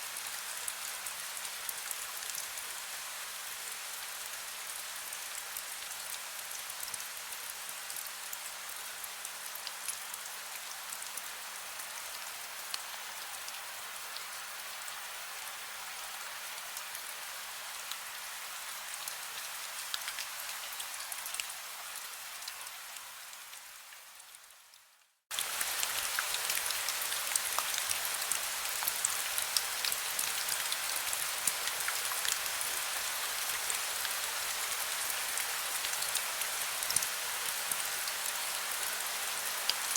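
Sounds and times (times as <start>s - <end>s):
heavy rain: 25.3s - 39.9s.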